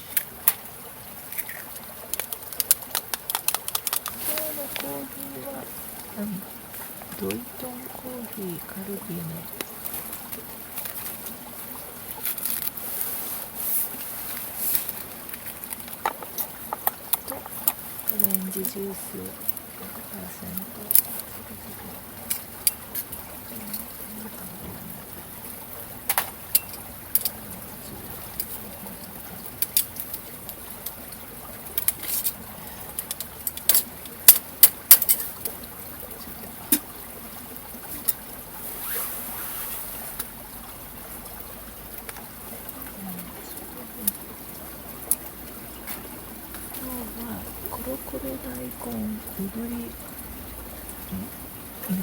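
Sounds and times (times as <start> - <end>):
sharp clicks and crackles: 0.0 - 5.3, 14.7 - 18.8, 29.3 - 35.6
river water flowing: 0.0 - 52.0.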